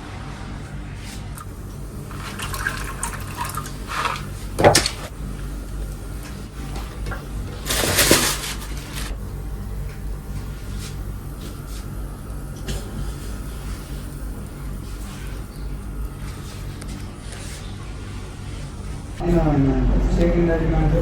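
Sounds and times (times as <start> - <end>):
steady low hum: 0.0 - 21.0
water pouring and splashing: 1.4 - 5.1.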